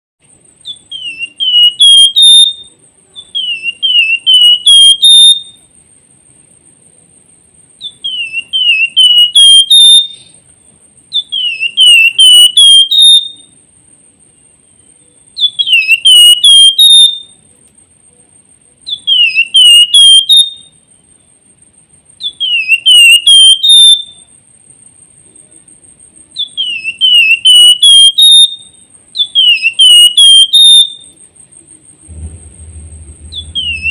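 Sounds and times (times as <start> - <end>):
bird singing whistled song: 0.6 - 5.7, 7.8 - 10.4, 11.1 - 13.6, 14.4 - 17.4, 18.9 - 21.3, 22.2 - 24.3, 26.4 - 31.2, 32.1 - 33.9
faint high-pitched tone: 32.1 - 33.9.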